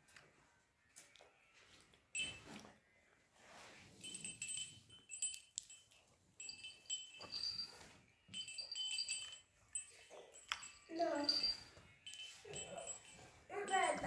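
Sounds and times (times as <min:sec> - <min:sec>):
small metal bells jingling: 0:02.1 - 0:02.6, 0:03.9 - 0:14.0.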